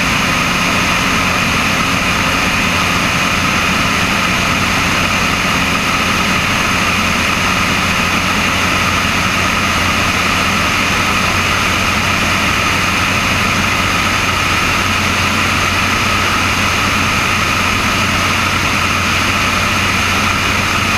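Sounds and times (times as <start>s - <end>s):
propeller plane engine droning: 0.0s - 20.9s.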